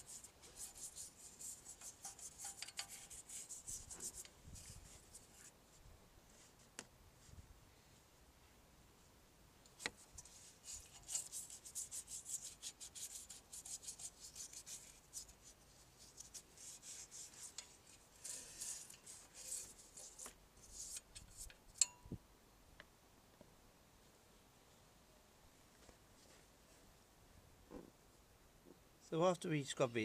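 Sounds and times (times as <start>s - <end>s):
toothbrush scrubbing metal pipe: 0.0s - 5.5s, 10.2s - 21.5s.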